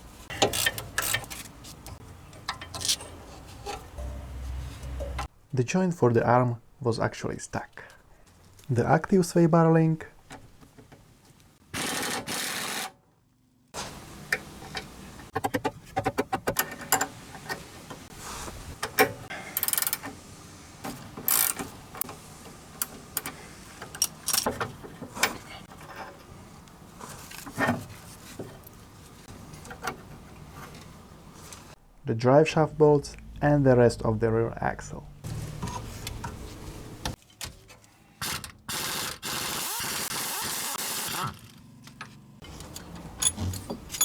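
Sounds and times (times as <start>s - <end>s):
ratchet wrench clicking: 0.3s - 1.4s
metal tools clinking: 0.3s - 5.3s, 42.5s - 44.0s.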